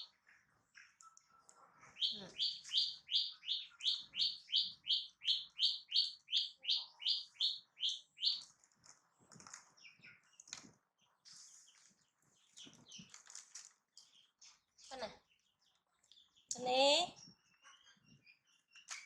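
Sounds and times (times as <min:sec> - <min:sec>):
rustles: 0:08.4 - 0:14.6.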